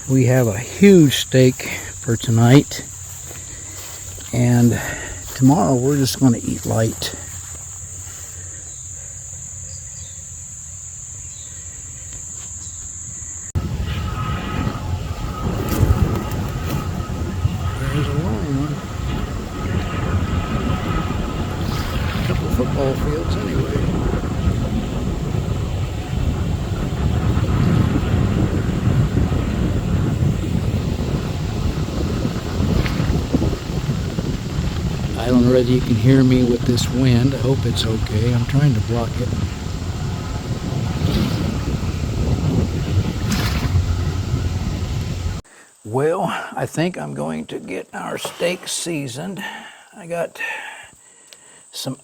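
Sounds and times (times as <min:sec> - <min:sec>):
wind buffeting microphone: 0:00.0 - 0:10.1, 0:12.2 - 0:45.5
crickets trilling: 0:00.0 - 0:52.0
low rumble: 0:13.6 - 0:45.4.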